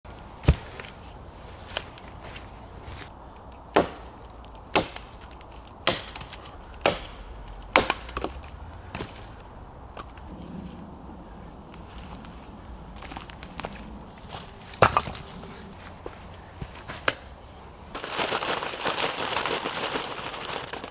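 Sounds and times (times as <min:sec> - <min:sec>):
wood being chopped: 0:00.4 - 0:01.0, 0:03.6 - 0:09.2, 0:14.8 - 0:15.3.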